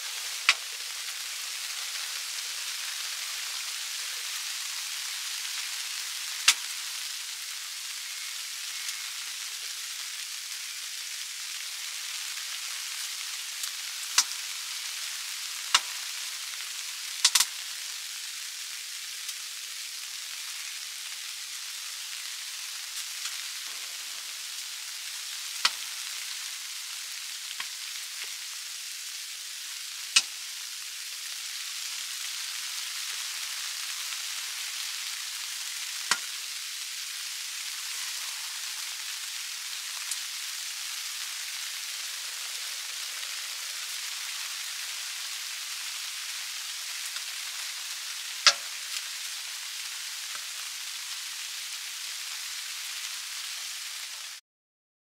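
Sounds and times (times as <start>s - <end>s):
stove steady hiss: 0.0s - 54.4s
firewood crackling pops: 6.5s - 6.7s, 14.2s - 14.4s, 15.7s - 15.9s, 17.2s - 17.5s, 36.1s - 36.3s, 48.4s - 49.0s.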